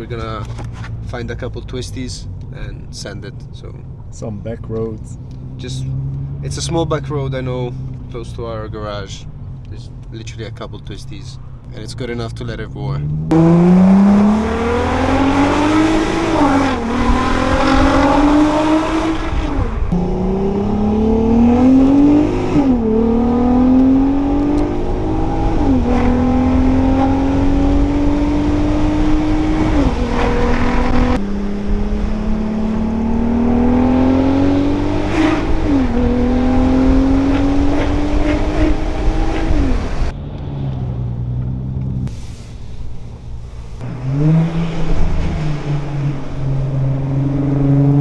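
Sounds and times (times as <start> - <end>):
car engine revving through gears: 4.6 - 8.2, 12.9 - 42.2, 43.8 - 48.0
exhaust crack on shifts: 13.2 - 47.1.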